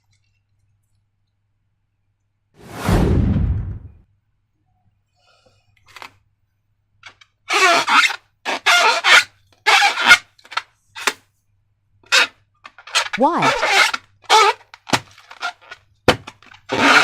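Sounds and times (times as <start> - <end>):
rubber balloons rubbing: 12.1 - 14.6, 16.7 - 17.0.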